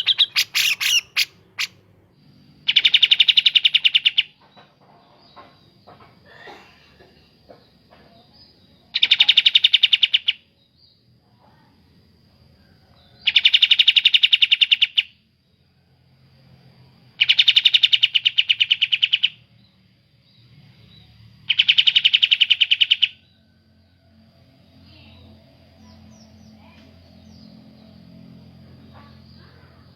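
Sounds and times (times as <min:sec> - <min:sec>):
songbird calling: 0:00.0 - 0:01.8, 0:02.6 - 0:05.7, 0:08.1 - 0:11.0, 0:17.2 - 0:19.5, 0:20.2 - 0:23.9, 0:24.8 - 0:29.9
faint low hum: 0:10.4 - 0:13.4, 0:23.2 - 0:29.9.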